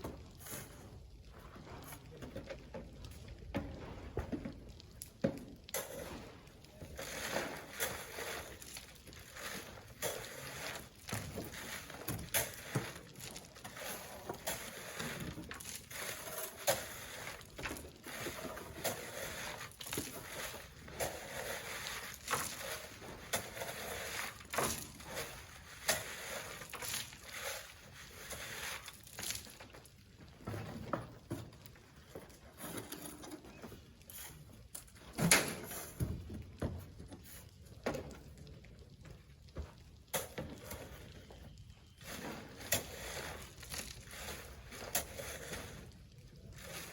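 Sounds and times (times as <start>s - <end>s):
knocks and rustles of sand: 0.0s - 31.6s, 39.7s - 46.9s
shovels scraping sand: 5.8s - 29.5s, 42.0s - 46.9s.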